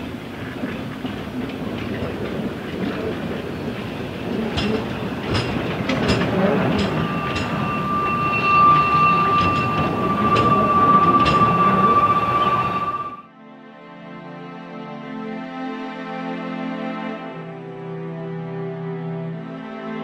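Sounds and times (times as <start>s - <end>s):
wheels clicking over rail joints: 0.0s - 12.9s
train running on track: 0.0s - 13.3s
steady high tone: 5.0s - 13.3s.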